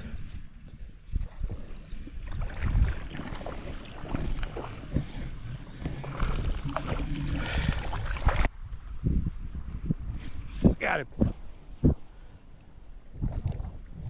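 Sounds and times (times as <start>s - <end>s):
water splashing and sloshing: 0.0s - 8.6s, 13.1s - 14.0s
wind rumble on microphone: 0.0s - 12.3s, 12.9s - 14.0s.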